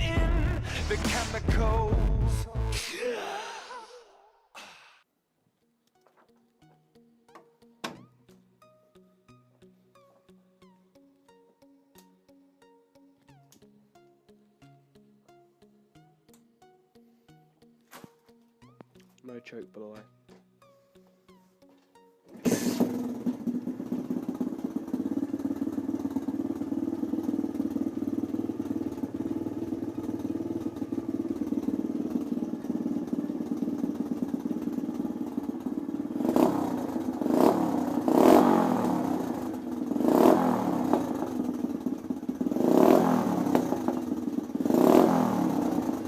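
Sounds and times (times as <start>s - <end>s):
motorcycle throttle blips: 22.3s - 46.0s
small motorcycle engine idling: 22.3s - 46.0s.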